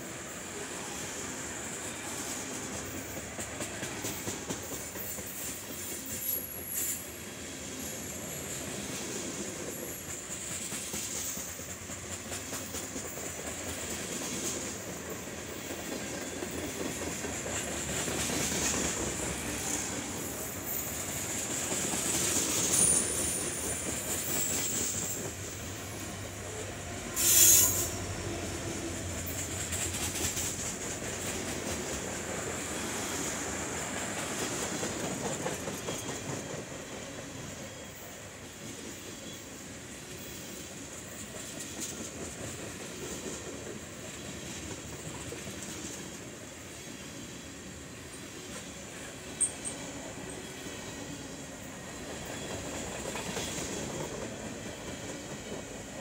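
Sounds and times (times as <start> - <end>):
freight train wheels clattering: 1.7 - 7.2, 8.1 - 26.6, 27.2 - 39.3, 40.0 - 47.0, 48.1 - 56.0
thin wheel squeal: 27.2 - 28.1.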